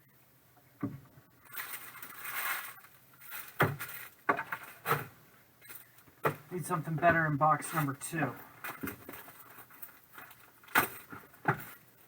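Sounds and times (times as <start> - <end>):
wrapper foil crinkling tear: 1.4 - 4.8
cards and box knocking rustling: 1.5 - 5.1, 8.6 - 11.9.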